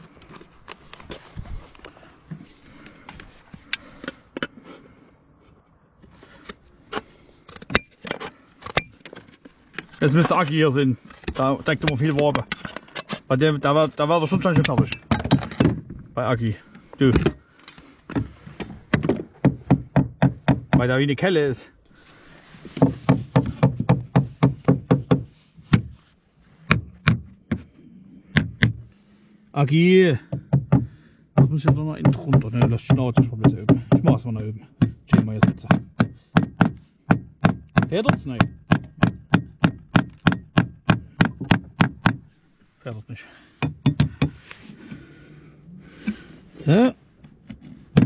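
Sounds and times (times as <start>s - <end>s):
hammer striking nails: 18.9s - 20.9s, 22.8s - 25.9s, 26.7s - 27.7s, 28.3s - 28.8s, 30.3s - 34.2s, 34.8s - 42.2s, 43.6s - 44.4s
hand tools tapping on slates: 43.6s - 44.4s.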